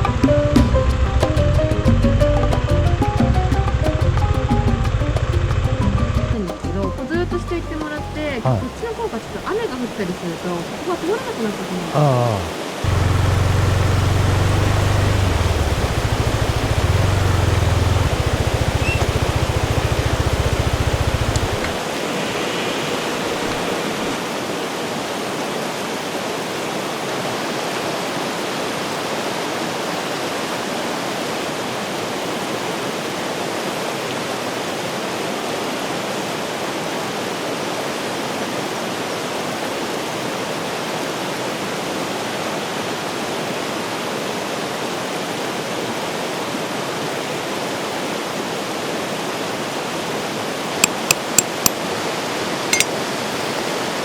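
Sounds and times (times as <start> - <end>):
river rushing over rocks: 8.4 - 54.0
sharp clicks: 50.8 - 51.8.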